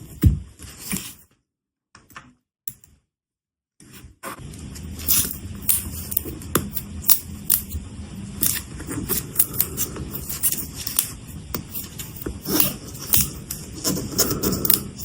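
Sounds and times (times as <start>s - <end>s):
low steady hum: 4.4s - 15.0s.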